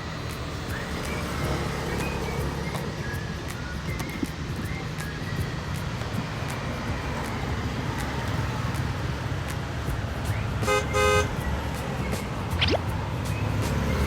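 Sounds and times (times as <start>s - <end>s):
low traffic rumble: 0.0s - 14.0s
vehicle horn honking: 10.7s - 11.3s.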